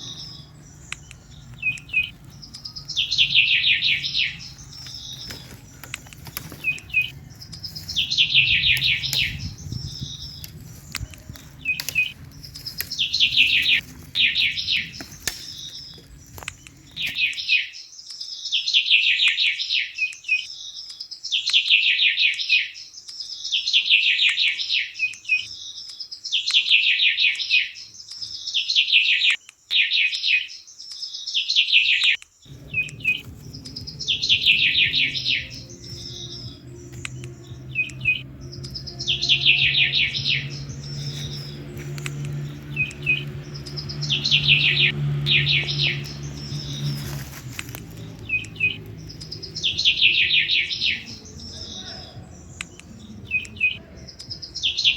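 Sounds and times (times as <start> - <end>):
songbird trilled song: 0.0 - 54.9
low steady hum: 32.5 - 54.6.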